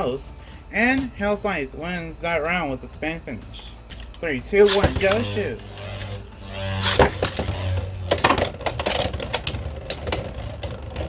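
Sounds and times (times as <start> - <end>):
background music: 0.0 - 11.0
spinning tops clashing: 4.0 - 11.0.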